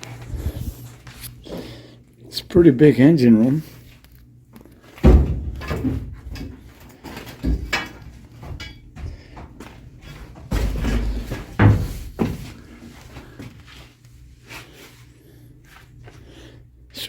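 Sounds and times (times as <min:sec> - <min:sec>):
dull thumps: 0:05.0 - 0:06.6, 0:10.2 - 0:12.7.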